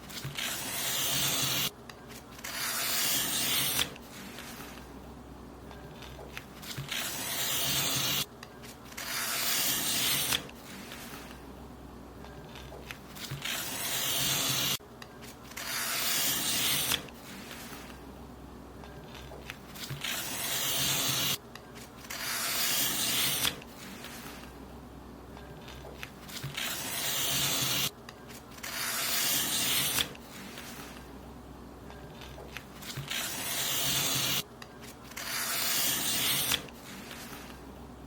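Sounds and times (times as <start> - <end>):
paper being cut: 0.1 - 4.8, 6.0 - 8.3, 8.9 - 11.4, 12.5 - 14.8, 15.5 - 18.0, 19.1 - 24.4, 25.6 - 27.9, 28.6 - 31.0, 32.2 - 34.4, 35.0 - 37.6.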